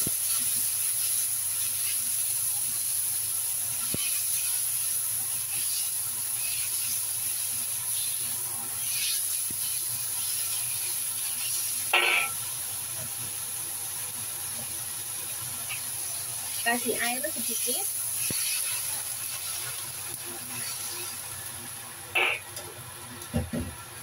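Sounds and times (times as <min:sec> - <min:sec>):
meat sizzling in oil: 0:00.0 - 0:24.0
spatula scraping wok: 0:03.7 - 0:12.4, 0:15.7 - 0:21.3.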